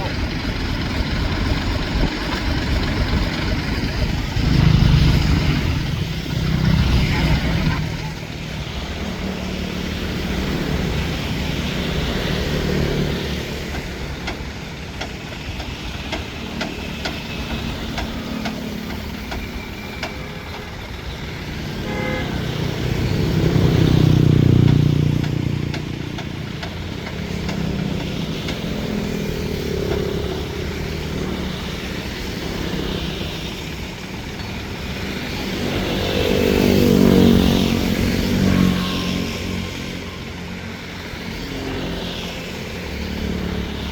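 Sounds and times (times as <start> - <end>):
motor engines running: 0.0 - 43.9
short horn toot: 21.8 - 22.6.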